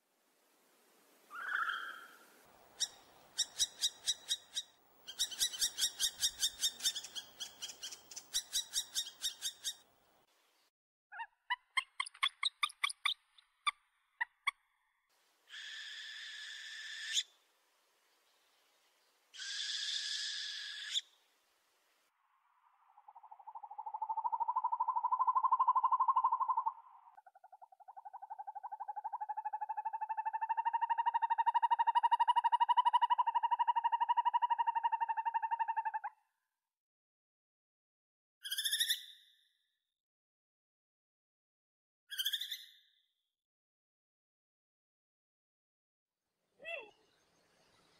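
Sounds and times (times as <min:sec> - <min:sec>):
owl trilling: 0:01.3 - 0:09.8, 0:15.5 - 0:17.3, 0:19.4 - 0:21.1, 0:23.2 - 0:36.1
owl harsh screech: 0:15.5 - 0:17.2, 0:19.4 - 0:21.0
owl short sharp calls: 0:15.5 - 0:17.2.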